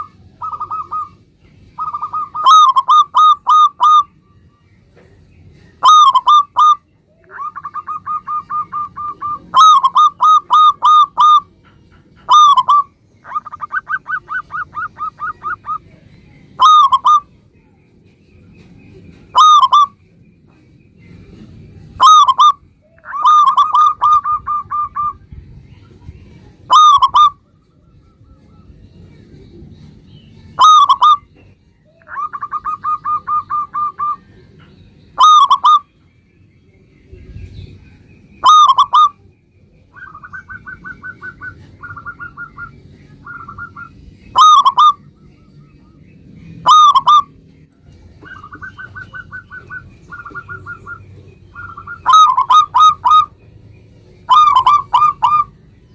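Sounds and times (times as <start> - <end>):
dove cooing: 0.0 - 1.2, 1.8 - 4.1, 5.8 - 16.0, 16.6 - 17.3, 19.3 - 20.0, 22.0 - 25.2, 26.7 - 27.5, 30.6 - 35.9, 39.9 - 45.0, 46.6 - 47.4, 48.2 - 53.3, 54.3 - 55.6.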